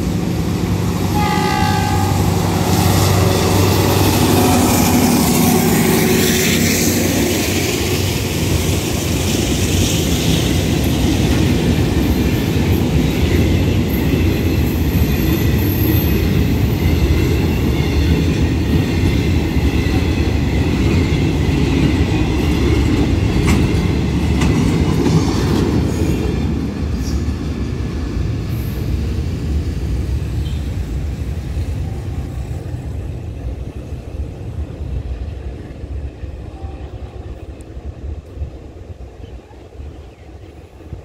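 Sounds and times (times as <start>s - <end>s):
freight train rumbling past: 0.0s - 41.0s.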